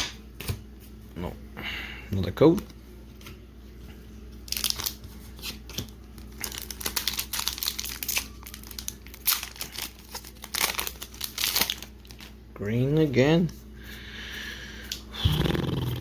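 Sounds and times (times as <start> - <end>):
foil wrapper crinkling and tearing: 4.4 - 12.4.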